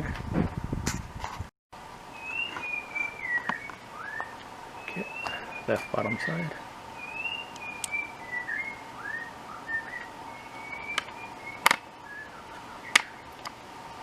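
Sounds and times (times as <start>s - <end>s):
bird whistling: 2.1s - 13.3s
sharp clicks: 7.5s - 8.0s.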